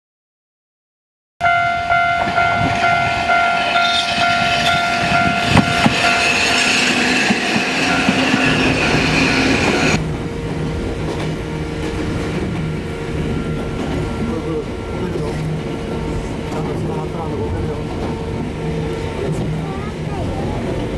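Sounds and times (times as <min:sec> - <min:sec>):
level crossing warning bell: 0:01.4 - 0:10.0, 0:12.5 - 0:17.6
train running with high squeal: 0:01.4 - 0:20.9
wheels clattering on rails: 0:01.7 - 0:20.9.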